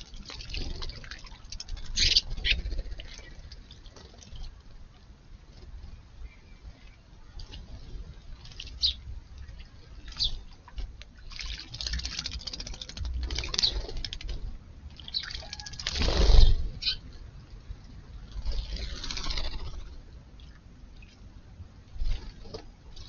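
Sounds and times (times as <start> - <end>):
wings fluttering and splashing: 0.0 - 17.2, 17.8 - 23.0
sparrows chirping: 8.6 - 10.5, 16.4 - 17.0.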